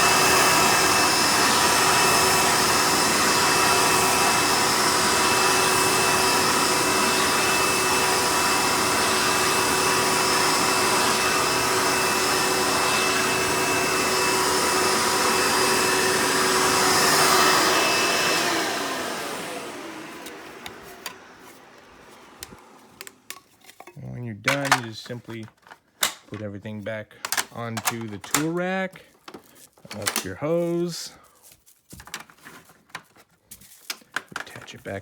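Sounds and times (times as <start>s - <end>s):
vacuum cleaner motor whining: 0.0s - 23.8s.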